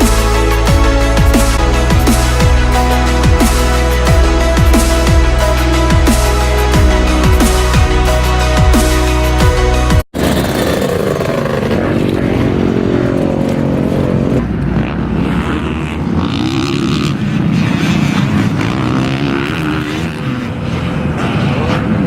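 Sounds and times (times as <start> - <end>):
dirt bike engine revving: 10.1 - 22.0.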